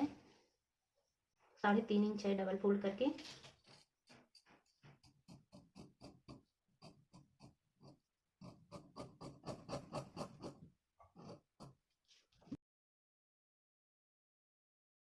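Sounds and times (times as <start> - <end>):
scissors snipping fabric: 3.4 - 10.6.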